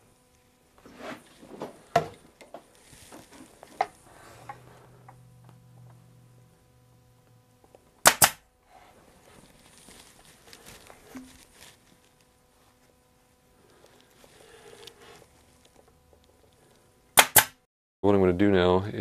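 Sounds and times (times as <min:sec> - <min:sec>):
pneumatic stapler firing: 0:08.0 - 0:08.4, 0:17.2 - 0:17.6
fabric rustling: 0:08.9 - 0:13.0.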